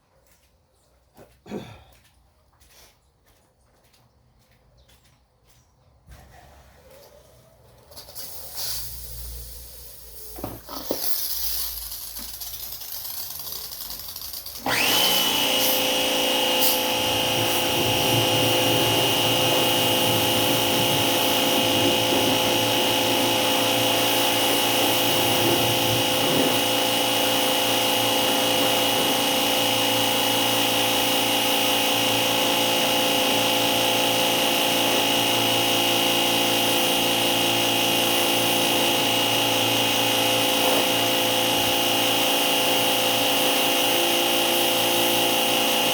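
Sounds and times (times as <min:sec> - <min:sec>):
electric motor whining: 0:13.2 - 0:45.9.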